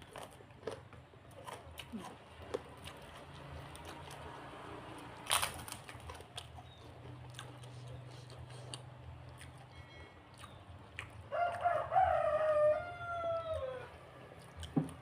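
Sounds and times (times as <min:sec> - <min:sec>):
rooster crowing: 0:11.3 - 0:14.0.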